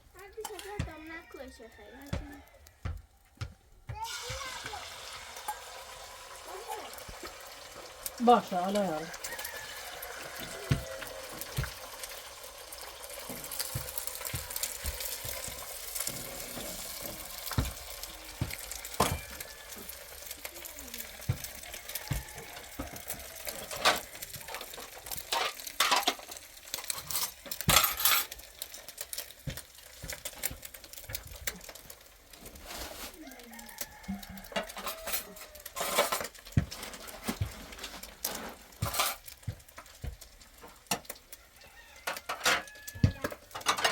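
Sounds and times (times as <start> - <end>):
utensils and dishes clinking: 12.9 - 31.8, 34.5 - 39.6, 42.0 - 43.9.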